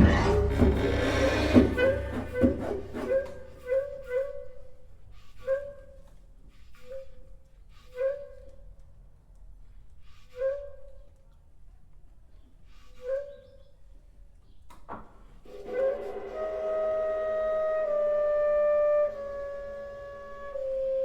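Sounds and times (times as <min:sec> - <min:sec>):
loud ensemble attack: 0:00.0 - 0:03.6
flute playing breathy notes: 0:00.0 - 0:06.0, 0:15.4 - 0:21.0.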